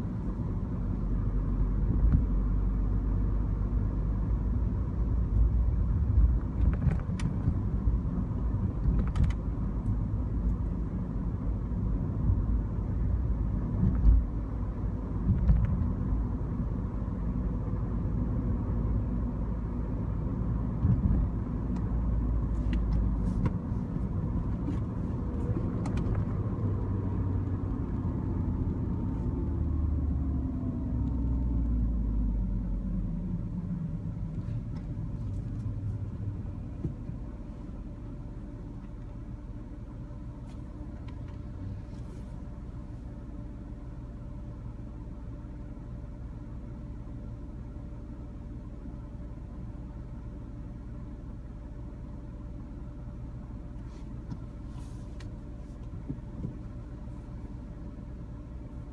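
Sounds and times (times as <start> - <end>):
car engine and road rumble: 0.0 - 58.9.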